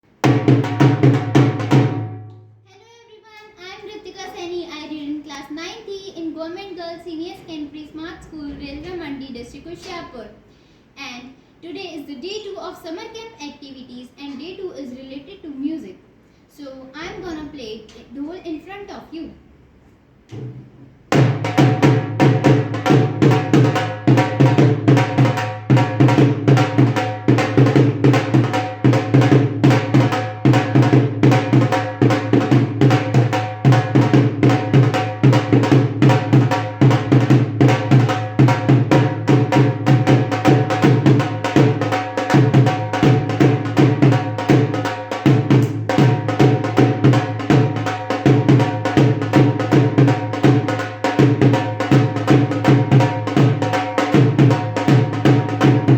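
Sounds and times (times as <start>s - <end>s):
dhol played with sticks: 0.1s - 2.3s, 20.3s - 55.9s.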